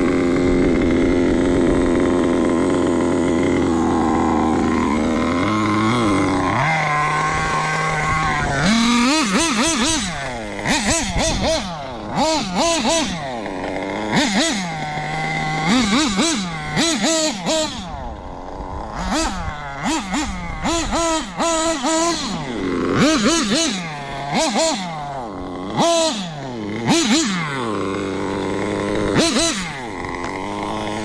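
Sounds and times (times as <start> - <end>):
model car engine revving: 0.0 - 31.0.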